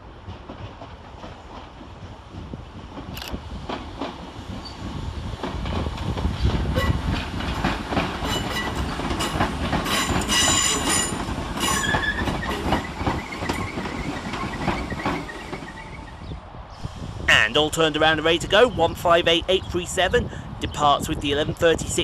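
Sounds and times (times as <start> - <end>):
train wheels clattering over track: 0.0 - 16.3.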